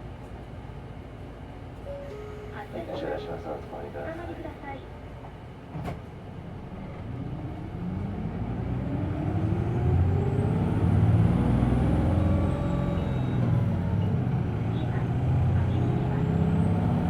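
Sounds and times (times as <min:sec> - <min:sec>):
bus engine revving up: 0:06.8 - 0:17.0.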